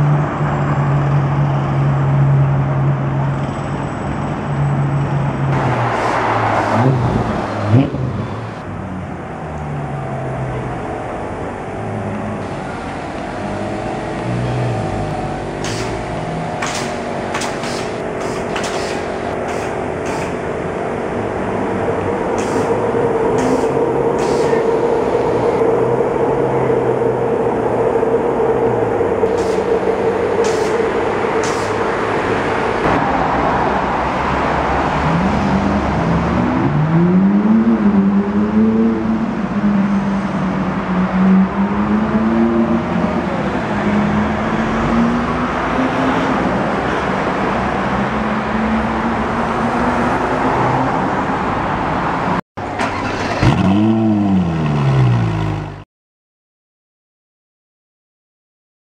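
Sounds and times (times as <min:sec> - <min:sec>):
city traffic: 0:00.0 - 0:55.9
sports car engine revving: 0:52.9 - 0:55.8.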